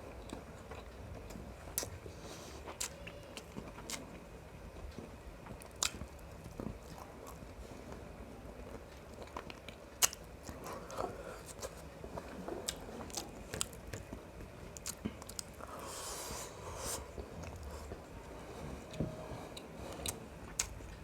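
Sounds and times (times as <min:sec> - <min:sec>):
wet chewing: 0:09.1 - 0:18.1.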